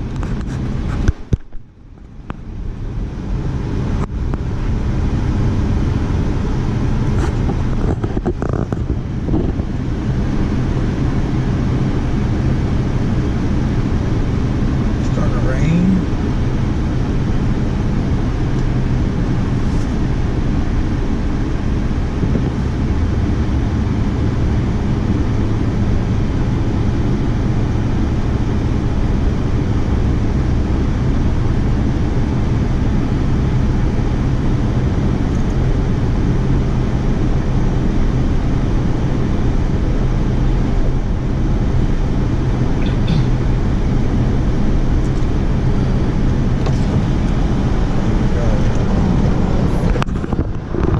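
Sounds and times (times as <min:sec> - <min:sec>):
engine running steadily: 0:00.0 - 0:50.9.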